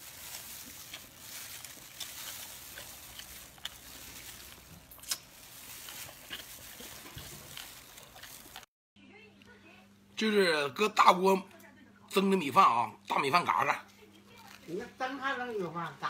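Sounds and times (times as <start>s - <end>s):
meat tearing: 0.0s - 8.7s
chewing with wet clicks: 1.7s - 8.7s.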